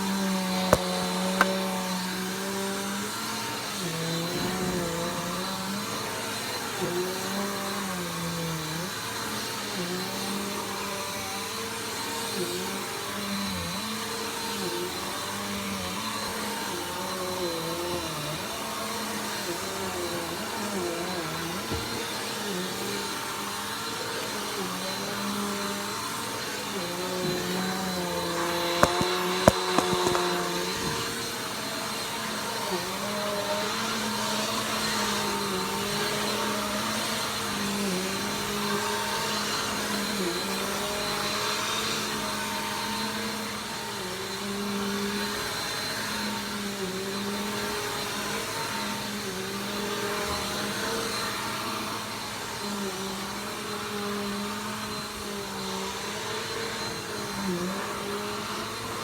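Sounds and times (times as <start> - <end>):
vacuum cleaner motor running: 0.0 - 59.0
sharp clicks: 28.8 - 30.3.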